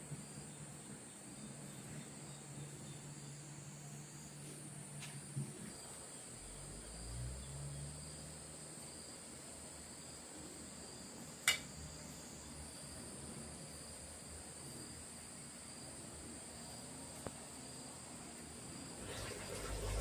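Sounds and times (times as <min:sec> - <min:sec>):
high-pitched insect chorus: 0:00.0 - 0:20.0
sharp click: 0:11.4 - 0:11.7.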